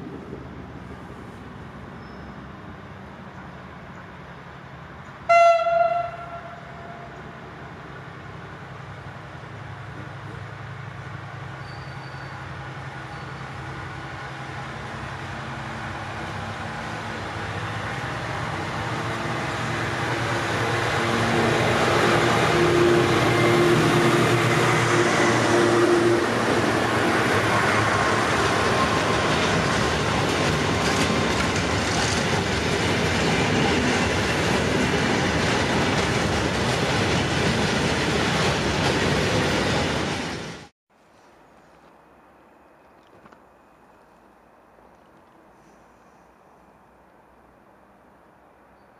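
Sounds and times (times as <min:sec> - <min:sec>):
diesel locomotive engine hum: 0:00.0 - 0:40.7
freight wagons rushing past: 0:08.6 - 0:40.7
train wheels clacking: 0:27.4 - 0:40.6.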